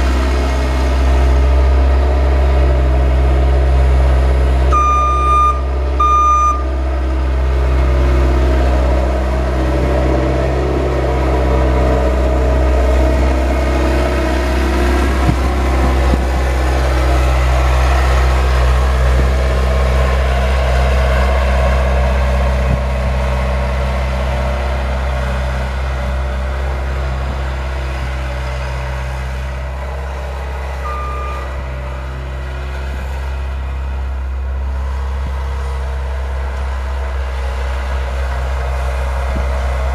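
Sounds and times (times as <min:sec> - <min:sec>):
vehicle engine humming: 0:00.0 - 0:39.9
short electronic beep: 0:04.7 - 0:06.7, 0:30.8 - 0:31.5.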